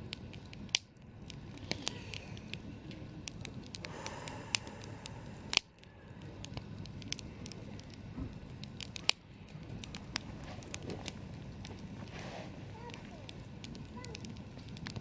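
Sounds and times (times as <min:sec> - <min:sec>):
campfire crackling and popping: 0:00.0 - 0:15.0
hiss of burning: 0:00.0 - 0:15.0.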